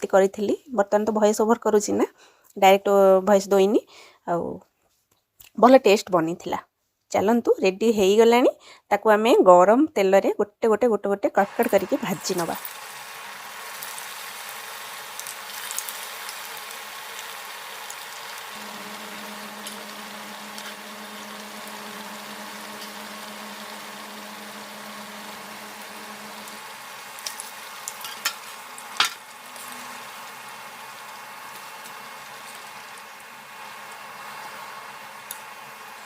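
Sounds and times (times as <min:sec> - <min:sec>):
cakes sizzling in hot oil: 0:11.4 - 0:36.0.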